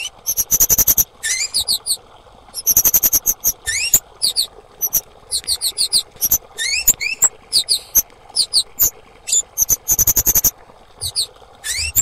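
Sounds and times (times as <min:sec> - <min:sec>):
bird chirping and whistling: 0:00.0 - 0:02.0, 0:02.6 - 0:12.0.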